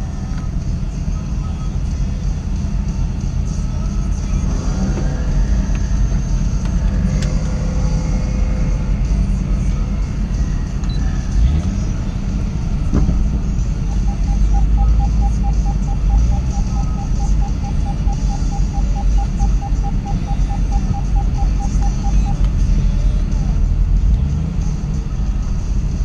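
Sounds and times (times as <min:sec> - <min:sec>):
car engine rumbling: 0:00.0 - 0:26.0
rapid electronic beeping: 0:12.7 - 0:23.2.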